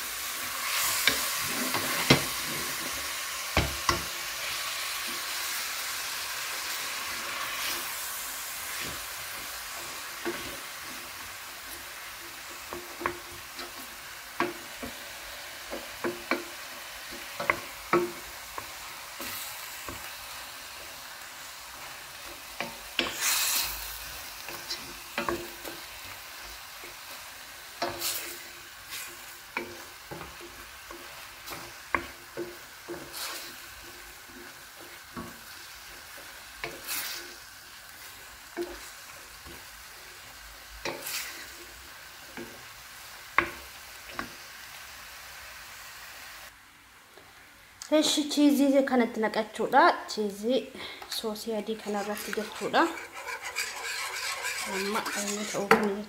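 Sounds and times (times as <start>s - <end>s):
food sizzling in a pan: 0.0s - 56.0s
utensil scraping pan: 0.6s - 3.1s, 51.6s - 56.0s.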